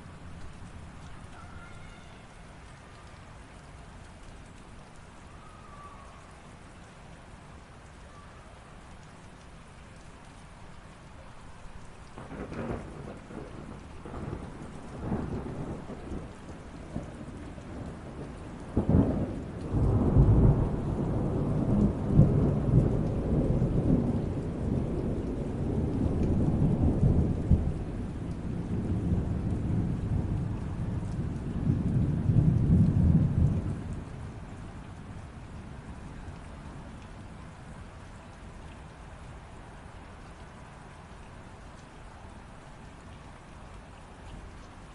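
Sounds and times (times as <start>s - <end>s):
light rain: 0.0s - 44.9s
thunder rumbling: 12.2s - 36.1s.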